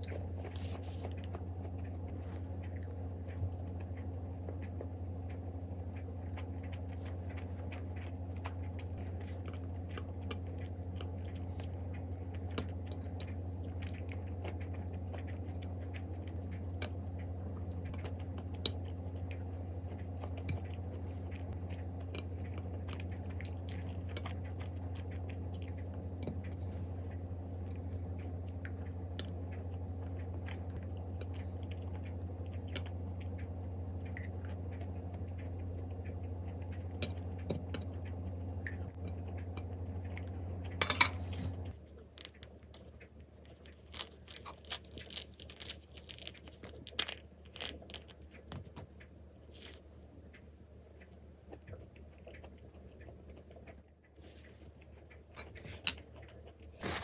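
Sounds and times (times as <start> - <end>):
low hum: 0.0 - 43.6
small clicks and crunches: 0.0 - 57.0.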